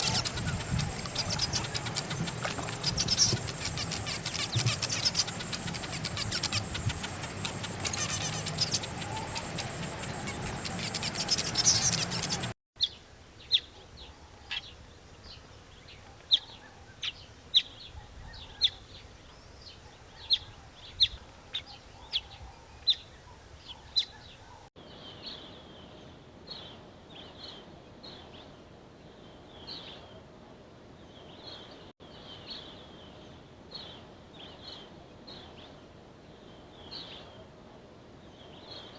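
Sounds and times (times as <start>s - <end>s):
small birds chirping: 0.0s - 25.6s.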